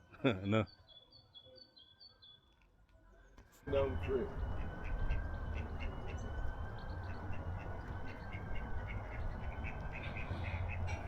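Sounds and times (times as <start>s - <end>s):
small birds chirping: 0.3s - 10.8s
ducks calling: 3.7s - 11.0s.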